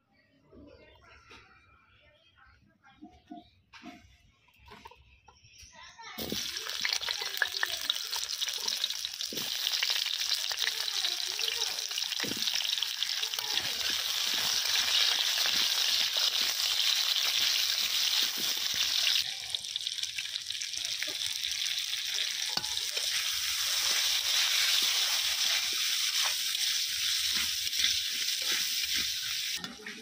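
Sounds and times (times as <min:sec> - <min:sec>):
potatoes sizzling in hot oil: 0:06.2 - 0:30.0
metal spatula scraping pan: 0:22.5 - 0:30.0.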